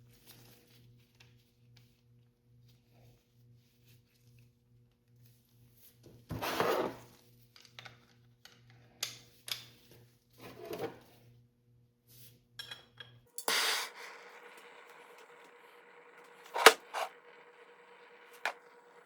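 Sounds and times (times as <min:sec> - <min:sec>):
steady low hum: 0:13.4 - 0:19.0
metal tools scraping and clinking: 0:16.4 - 0:17.1.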